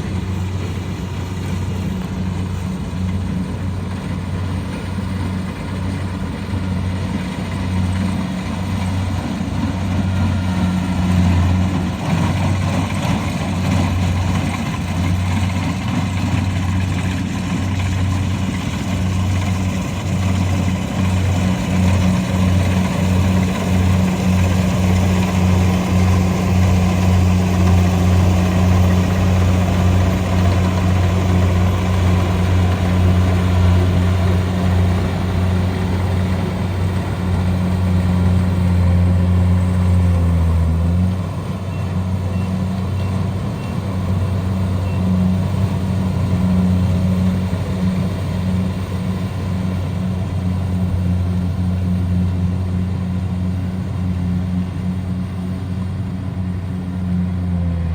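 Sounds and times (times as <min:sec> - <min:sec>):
combine harvester engine running: 0:00.0 - 0:57.9.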